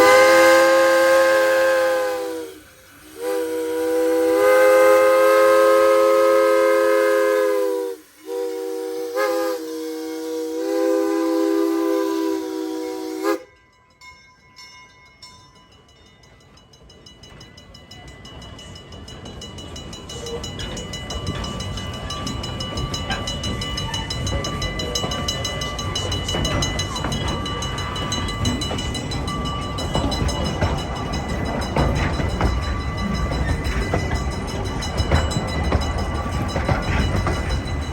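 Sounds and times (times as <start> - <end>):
steam locomotive whistle blasts: 0.0 - 13.6
low rumble of train: 0.0 - 37.9.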